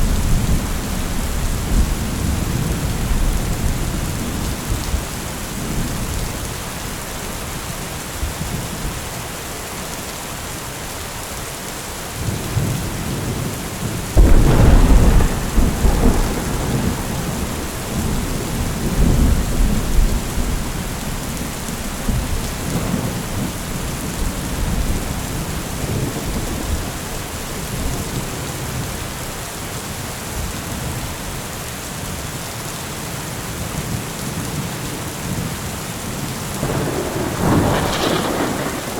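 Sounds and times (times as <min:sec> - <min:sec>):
steady rain: 0:00.0 - 0:38.9
thunder rumbling: 0:14.1 - 0:28.4, 0:36.6 - 0:38.9.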